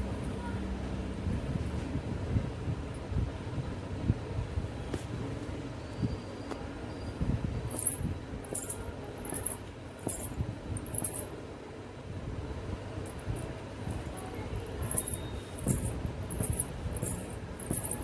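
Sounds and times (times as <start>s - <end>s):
soft footstep thumps: 7.7s - 11.3s, 13.4s - 18.0s
anklets jingling: 7.7s - 11.4s, 13.1s - 18.0s.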